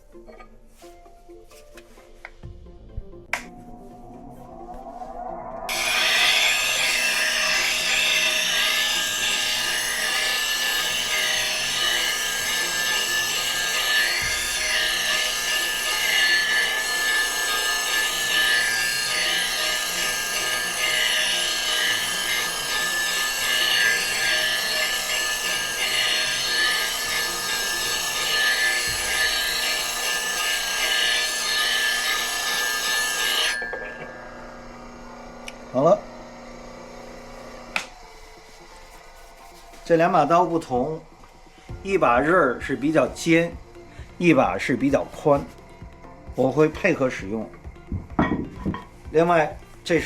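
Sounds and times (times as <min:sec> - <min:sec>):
grinder whine: 0:03.3 - 0:50.0
steel tool scraping on grinding wheel: 0:03.6 - 0:36.0.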